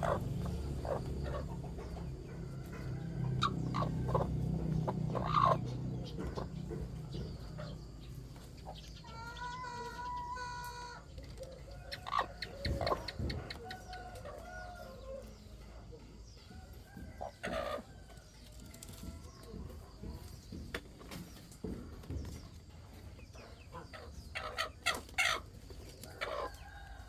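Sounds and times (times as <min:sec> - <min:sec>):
chickens clucking: 0:00.0 - 0:27.0
rooster crowing: 0:00.9 - 0:05.6, 0:12.0 - 0:15.3.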